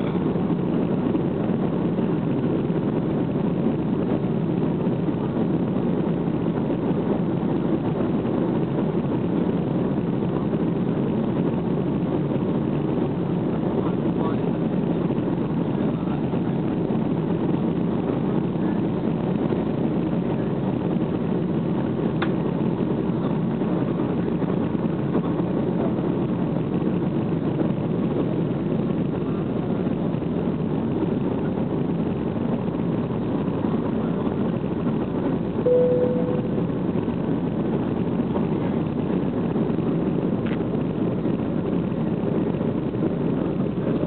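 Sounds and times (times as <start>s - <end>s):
airliner cabin engine noise: 0.0s - 44.0s
short single tone: 35.7s - 36.8s.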